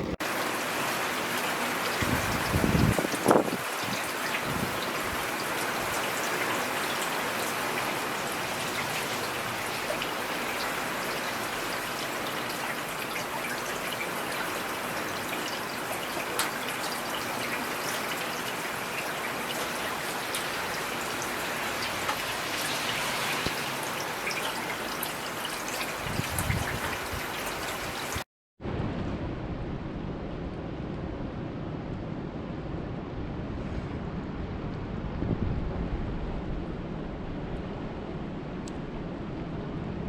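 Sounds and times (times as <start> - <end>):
steady rain: 0.0 - 28.3
raindrops pattering on a surface: 0.2 - 28.2.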